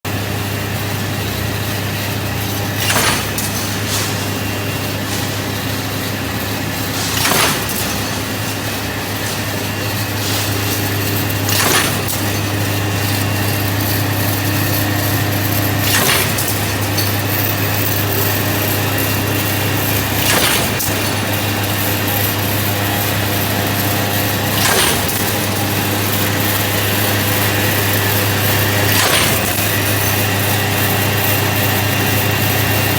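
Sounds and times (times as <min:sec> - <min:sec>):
wire straightening machine humming: 0:00.1 - 0:32.9
cutter clacking: 0:02.2 - 0:19.1.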